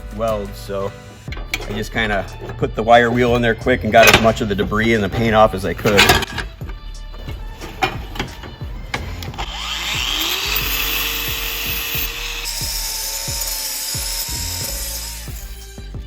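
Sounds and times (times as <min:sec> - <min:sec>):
wire wheel power tool whining: 0:00.3 - 0:16.0.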